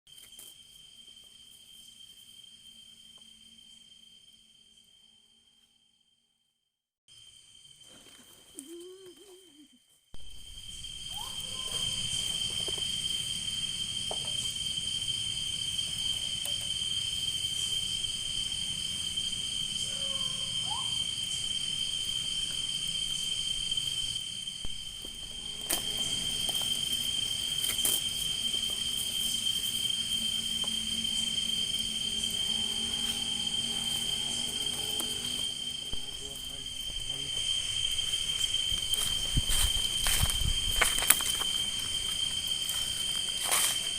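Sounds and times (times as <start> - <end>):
insects trilling: 0.1 - 6.2, 7.1 - 43.9
short rising calls: 24.6 - 40.0.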